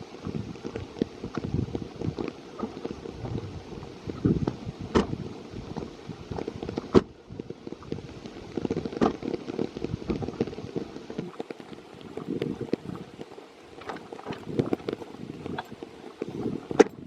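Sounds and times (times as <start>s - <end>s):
rain pattering close up: 0.0s - 17.0s
rustling: 7.9s - 17.0s.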